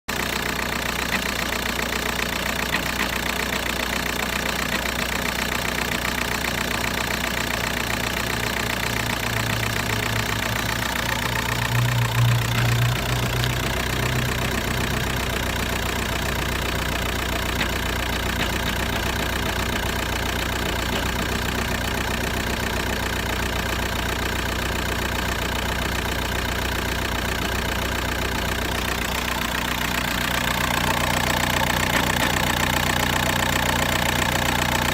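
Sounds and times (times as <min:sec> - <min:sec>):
diesel engine idling with knocking: 0:00.1 - 0:34.9
loud low hum: 0:09.2 - 0:23.2.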